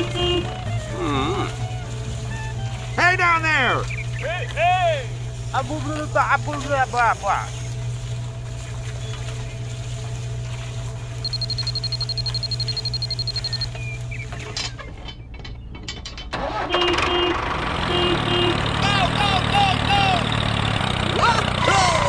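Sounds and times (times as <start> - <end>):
rough engine-like sound: 0.0 - 14.7, 16.4 - 22.0
small motor humming: 7.6 - 14.2
high electronic beeps: 11.2 - 13.8.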